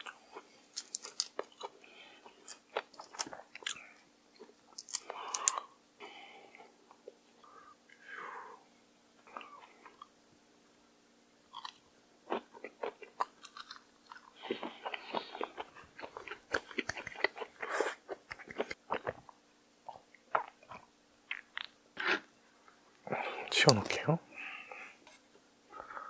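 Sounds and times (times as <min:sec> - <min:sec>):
close chewing with wet smacks: 0:11.6 - 0:19.3.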